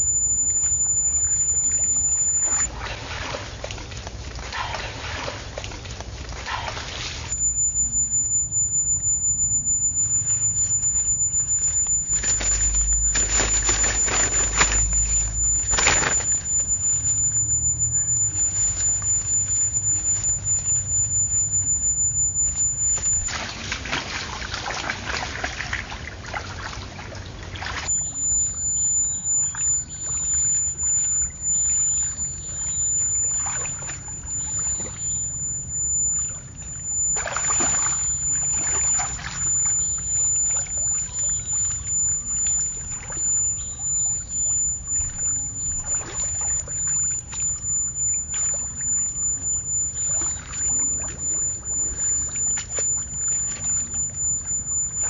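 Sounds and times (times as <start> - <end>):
water sloshing and splashing: 2.7 - 7.3, 23.3 - 27.9
steady low rumble: 7.3 - 23.3.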